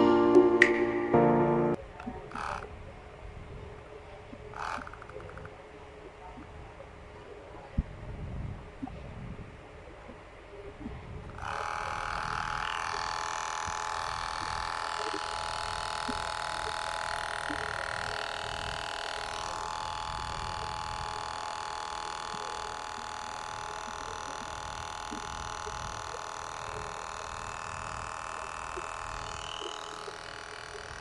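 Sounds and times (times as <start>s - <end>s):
electric hair trimmer buzzing: 11.4s - 31.0s.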